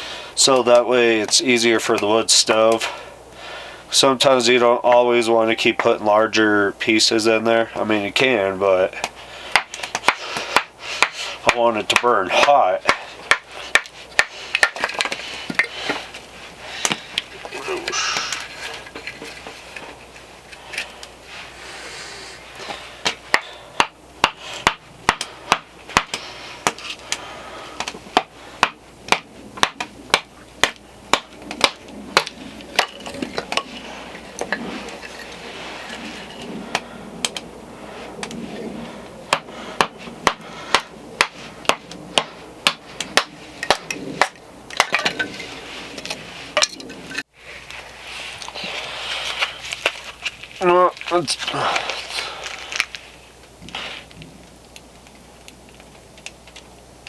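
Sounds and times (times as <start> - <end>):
axe strikes splitting firewood: 9.0 - 16.0, 23.0 - 26.8, 27.8 - 33.7, 39.3 - 45.2.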